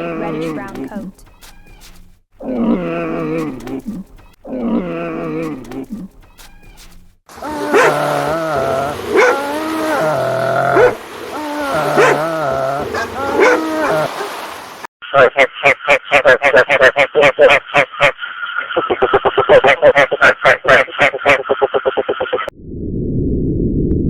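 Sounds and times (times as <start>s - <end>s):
wild dogs yelping: 7.3s - 14.4s
wild dogs calling: 7.3s - 14.6s.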